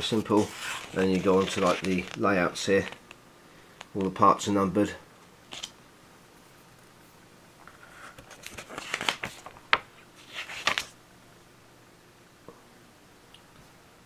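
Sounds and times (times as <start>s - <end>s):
paper pages rustling: 0.0s - 3.2s, 5.5s - 5.7s, 7.6s - 11.0s
sharp page flicks: 10.2s - 11.0s.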